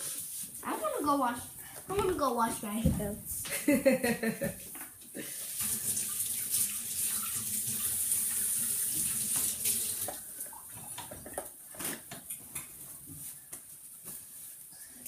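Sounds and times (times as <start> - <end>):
hands washing: 5.2 - 12.7
tap water running into sink: 5.5 - 11.4.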